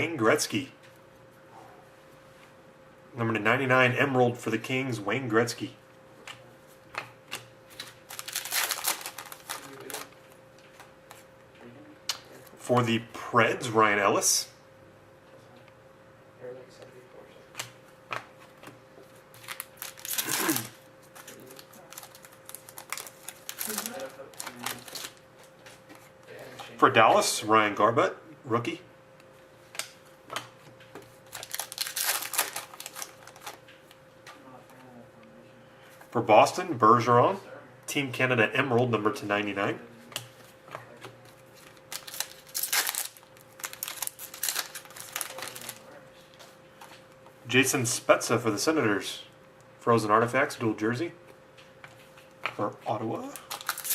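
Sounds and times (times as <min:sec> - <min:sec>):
cards rustling: 0:07.7 - 0:11.2, 0:17.6 - 0:26.7, 0:29.8 - 0:33.7, 0:40.1 - 0:47.0, 0:53.2 - 0:53.9.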